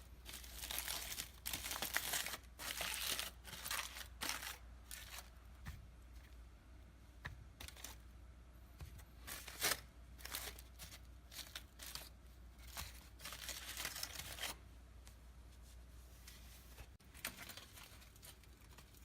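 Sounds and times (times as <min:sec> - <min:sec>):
peel tearing crinkly: 0:00.2 - 0:05.3, 0:09.2 - 0:14.6.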